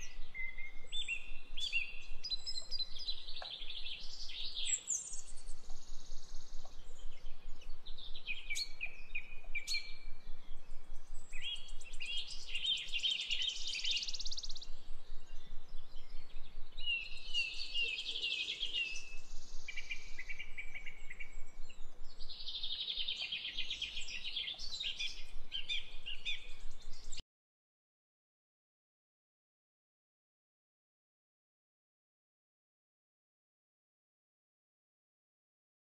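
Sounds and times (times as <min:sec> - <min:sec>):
birds chirping and trilling: 0:00.0 - 0:27.2.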